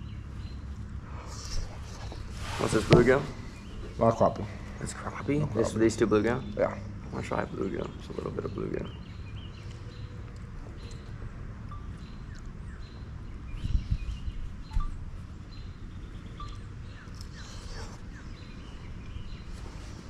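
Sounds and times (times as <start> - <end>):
soft bumps: 2.0 - 4.5
faint bird chirps: 7.5 - 20.0.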